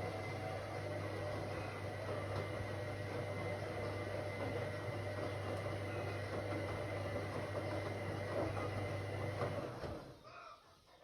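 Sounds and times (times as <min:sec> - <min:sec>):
washing machine running: 0:00.0 - 0:10.2.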